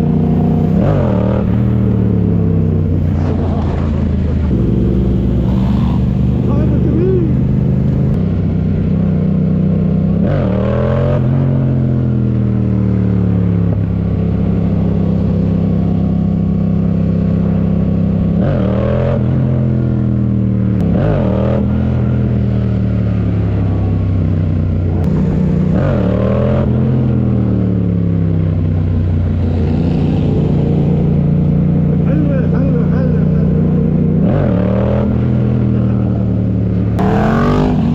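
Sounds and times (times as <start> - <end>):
motorcycle engine running: 0.0 - 37.9
motorcycle throttle blips: 11.2 - 37.9.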